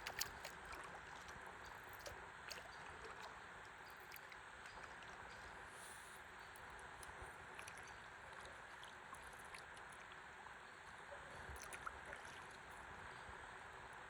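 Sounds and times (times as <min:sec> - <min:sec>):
flowing river water: 0:00.0 - 0:14.0
small ticks and drips: 0:00.0 - 0:14.0.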